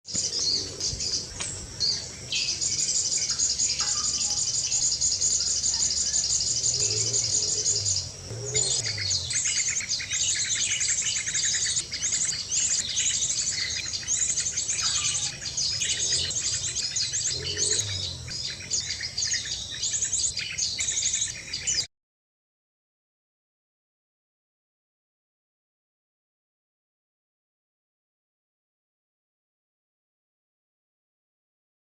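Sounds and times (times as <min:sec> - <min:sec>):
small birds chirping and trilling: 0:00.1 - 0:21.9.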